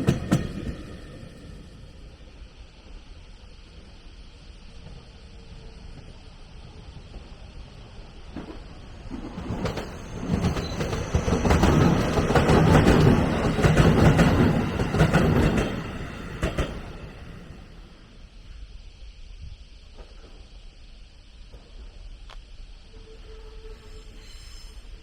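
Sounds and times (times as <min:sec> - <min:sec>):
train wheels clicking over rails: 0:00.0 - 0:02.2, 0:04.7 - 0:18.3
train passing: 0:00.0 - 0:25.0.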